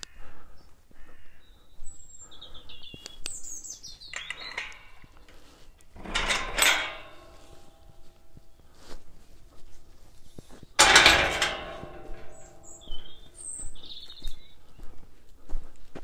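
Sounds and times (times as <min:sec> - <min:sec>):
birds chirping and singing: 0:00.1 - 0:06.7, 0:10.5 - 0:15.0.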